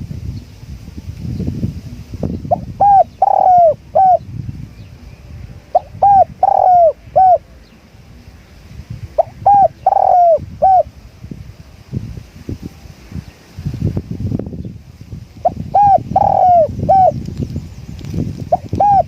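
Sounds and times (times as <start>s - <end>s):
low wind rumble: 0.0s - 19.0s
dove cooing: 2.5s - 4.2s, 5.7s - 7.5s, 9.1s - 10.9s, 15.4s - 17.2s, 18.5s - 19.0s.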